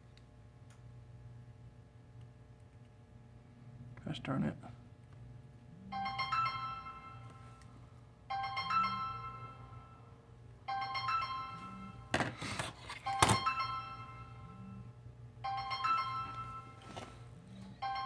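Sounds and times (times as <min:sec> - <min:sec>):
telephone melodic ringtone: 0:05.9 - 0:07.7, 0:08.3 - 0:12.1, 0:13.0 - 0:17.2, 0:17.8 - 0:18.0.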